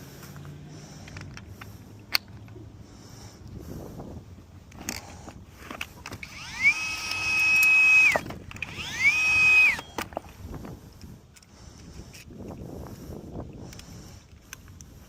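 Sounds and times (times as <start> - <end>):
clicks and knocks of tool handling: 0.4 - 2.6
power tool motor whining: 5.8 - 10.3.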